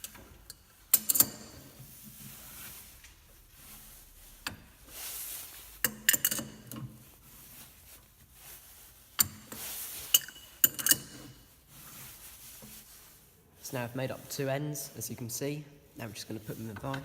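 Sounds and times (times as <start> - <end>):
metal tools clinking: 0.0 - 1.8, 10.1 - 11.4.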